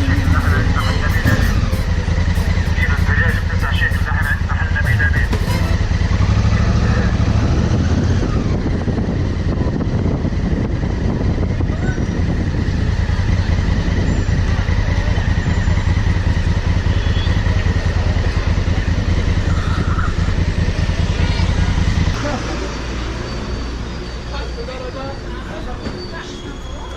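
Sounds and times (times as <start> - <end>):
rushing noise: 0.0 - 11.6
motorcycle engine running: 0.0 - 22.6.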